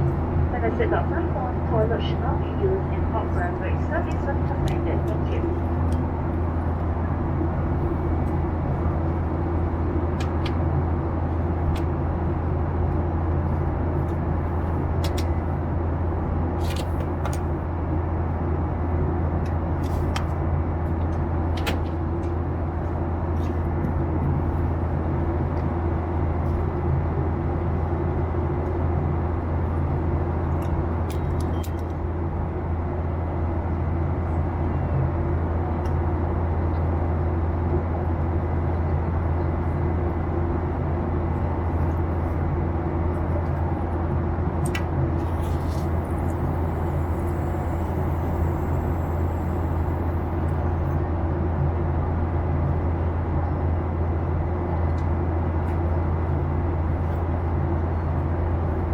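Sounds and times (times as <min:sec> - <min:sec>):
jet engines humming in cabin: 0:00.0 - 0:58.9.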